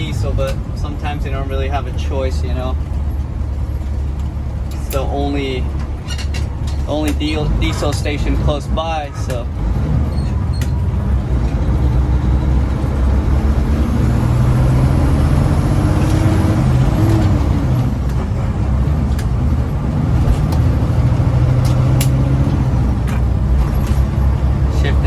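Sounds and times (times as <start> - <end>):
diesel truck engine under load: 0.0 - 25.0
sharp clicks: 21.6 - 22.3.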